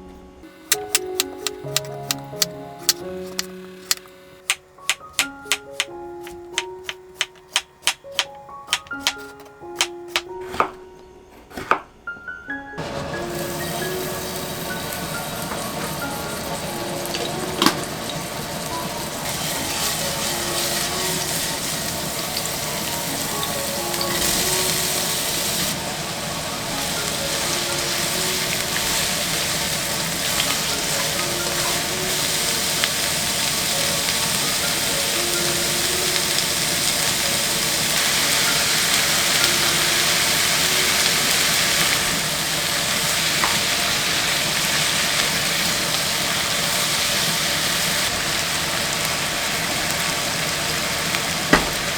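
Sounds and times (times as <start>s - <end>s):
food sizzling in a pan: 0.6s - 9.2s, 12.8s - 51.9s.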